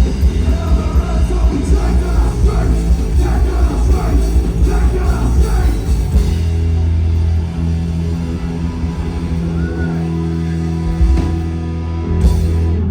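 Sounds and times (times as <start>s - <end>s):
rock band playing: 0.0s - 12.9s
person singing or yelling: 0.2s - 6.3s.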